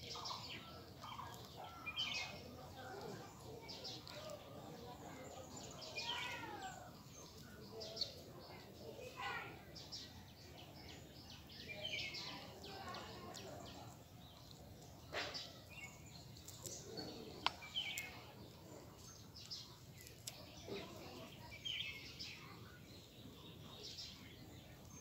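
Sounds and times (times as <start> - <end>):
bird chirps: 9.8 - 25.0.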